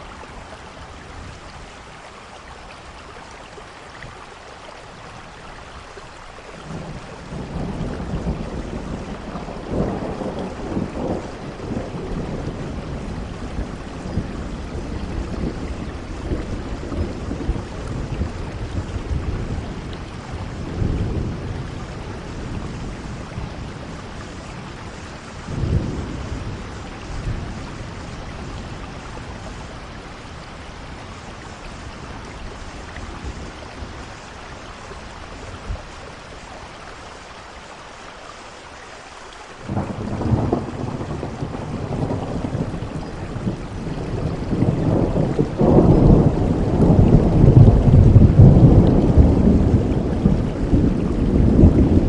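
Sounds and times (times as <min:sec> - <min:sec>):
steady rainfall: 0:00.0 - 0:52.0
rolling thunder: 0:06.6 - 0:36.0, 0:39.7 - 0:52.0.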